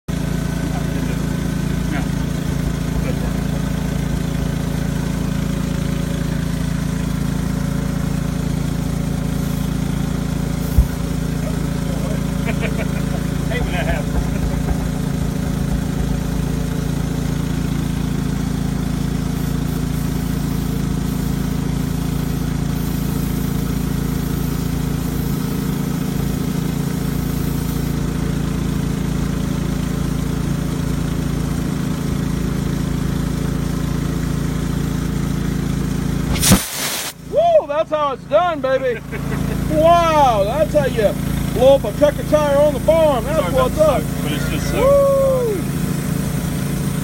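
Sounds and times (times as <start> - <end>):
engine idling: 0.1 - 36.4, 37.2 - 47.0.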